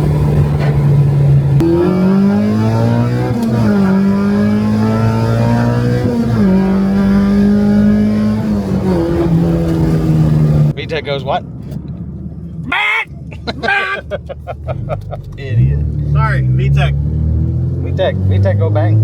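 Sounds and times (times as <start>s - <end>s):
car engine revving high: 0.0s - 10.8s, 14.8s - 19.0s.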